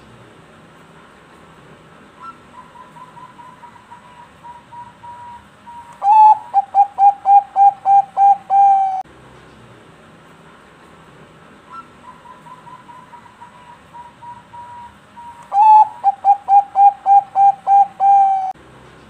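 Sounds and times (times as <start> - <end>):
dove cooing: 2.2 - 9.0, 11.7 - 18.6.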